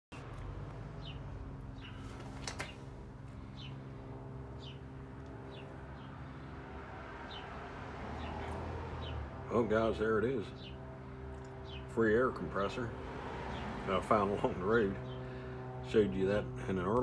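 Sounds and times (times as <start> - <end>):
low mechanical hum: 0.1 - 17.0
small bird chirping: 1.0 - 3.9, 4.6 - 6.1.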